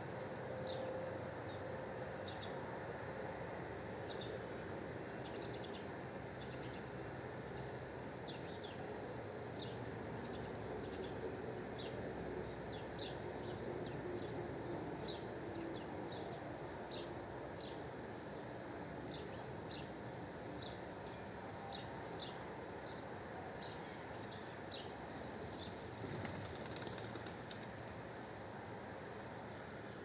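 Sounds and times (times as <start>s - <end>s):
steady background noise: 0.0s - 30.0s
small birds chirping: 19.1s - 27.9s.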